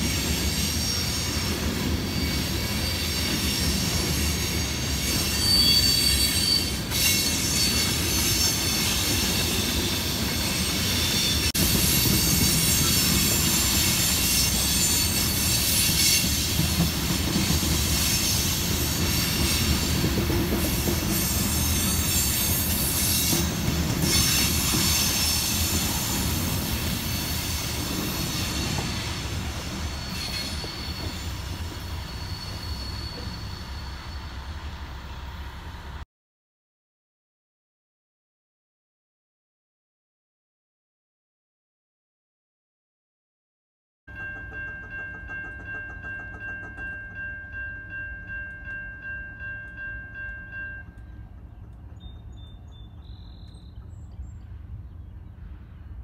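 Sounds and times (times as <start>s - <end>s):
train wheel squeals: 0.0s - 35.8s, 44.1s - 54.4s
freight train rolling rumble: 0.0s - 36.0s, 44.1s - 56.0s.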